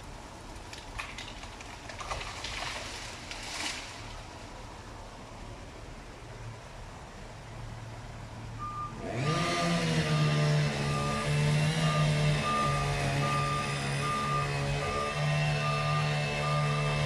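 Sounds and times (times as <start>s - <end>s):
diesel engine revving: 8.6s - 17.0s
reverse warning beeps: 8.6s - 17.0s.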